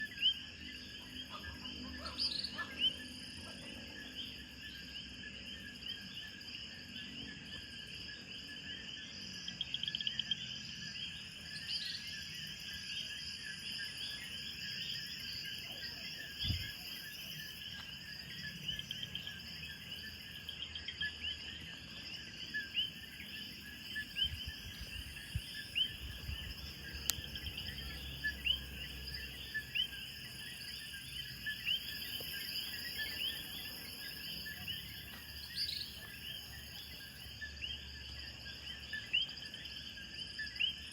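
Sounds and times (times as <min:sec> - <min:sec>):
insects chirping: 0:00.0 - 0:40.9.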